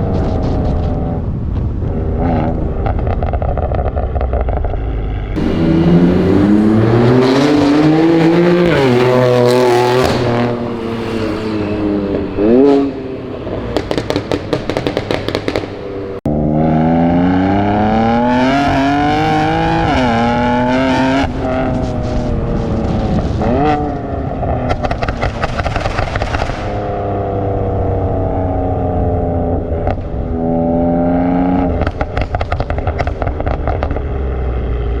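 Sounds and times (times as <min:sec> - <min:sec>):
exhaust pops and crackles: 0:00.0 - 0:05.5, 0:13.5 - 0:16.2, 0:21.2 - 0:27.2, 0:31.4 - 0:35.0
car engine accelerating hard: 0:00.0 - 0:35.0.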